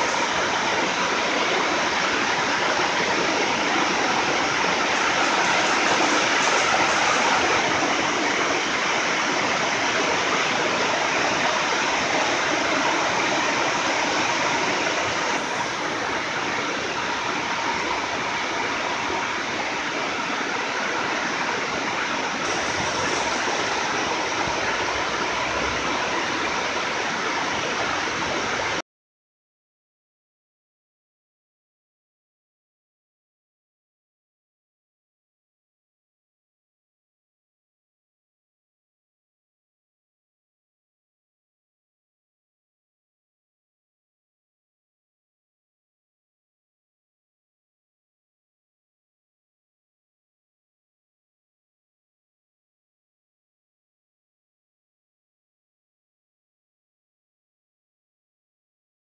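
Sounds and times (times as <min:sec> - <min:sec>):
heavy rain pouring: 0:00.0 - 0:28.8.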